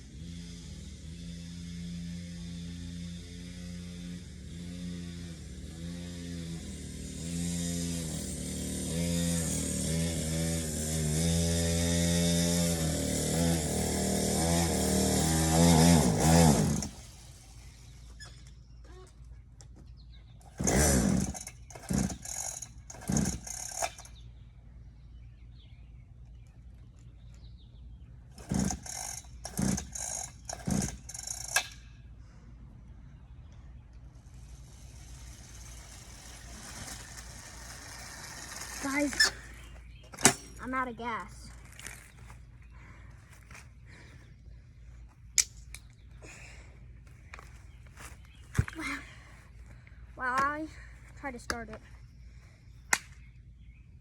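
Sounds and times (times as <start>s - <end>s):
dirt bike engine revving: 0.0s - 18.1s, 20.5s - 24.2s, 28.3s - 31.7s, 34.2s - 41.2s
engine kicked over without catching: 20.5s - 24.1s, 28.3s - 31.7s.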